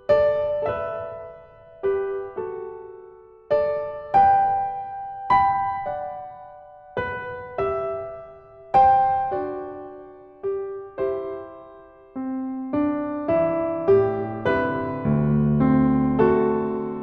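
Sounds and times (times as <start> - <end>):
slow gentle piano chords: 0.0 - 17.0.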